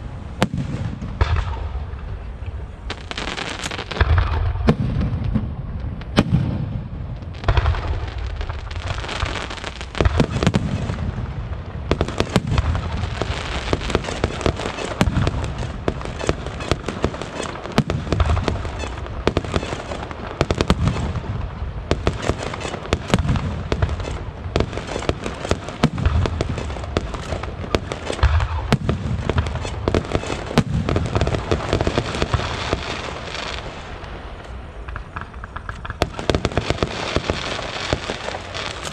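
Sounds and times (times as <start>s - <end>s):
deep firework booms: 0.0s - 2.3s, 3.9s - 38.9s
fireworks crackling: 0.0s - 38.9s.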